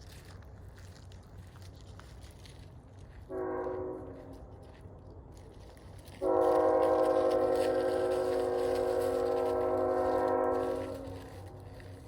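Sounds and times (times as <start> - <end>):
locomotive air horn chord: 3.3 - 4.2, 6.2 - 11.6.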